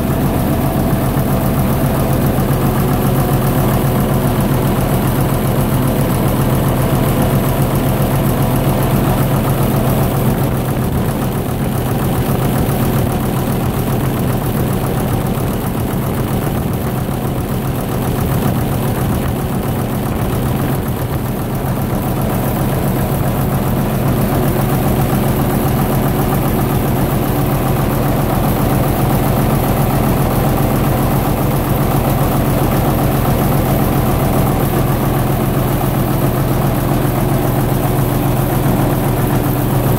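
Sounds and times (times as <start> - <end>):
diesel generator running: 0.0 - 39.9.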